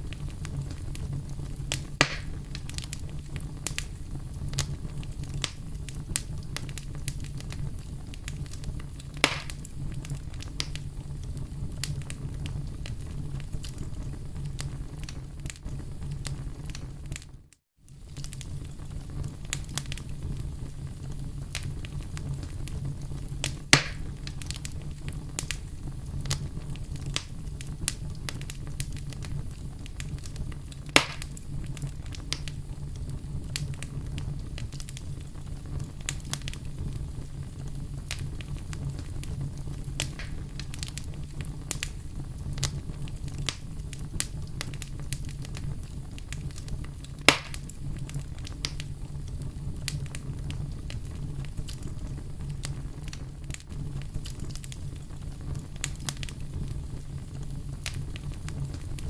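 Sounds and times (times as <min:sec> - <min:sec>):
fire snapping loudly: 0:00.0 - 0:17.3, 0:17.9 - 0:59.0
wood fire crackling: 0:00.0 - 0:59.0
steady low rumble: 0:18.1 - 0:59.0.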